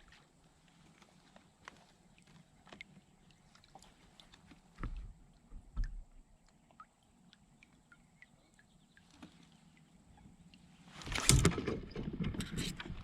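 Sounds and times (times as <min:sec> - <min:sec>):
low thumps on kayak hull: 0:04.7 - 0:06.1
faint clicks and chirps: 0:06.3 - 0:10.7.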